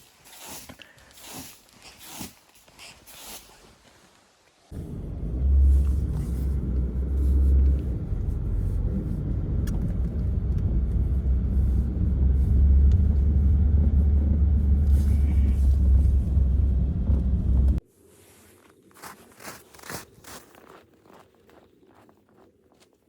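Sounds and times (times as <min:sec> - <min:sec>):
deep steady rumble: 0:04.7 - 0:17.8.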